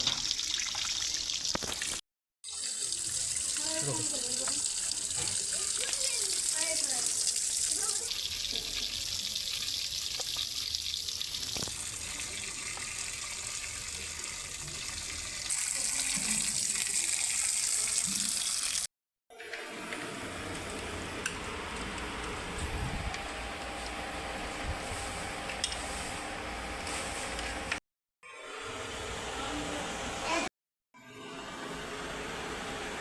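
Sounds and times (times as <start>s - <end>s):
water running from tap: 0.0s - 18.9s.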